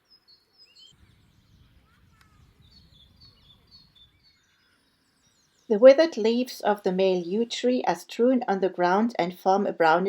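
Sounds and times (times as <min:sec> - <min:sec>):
small birds chirping and trilling: 0:00.0 - 0:07.9.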